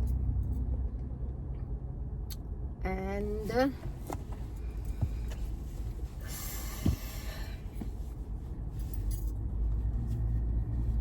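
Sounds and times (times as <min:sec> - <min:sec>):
car cabin rumble: 0:02.9 - 0:11.0.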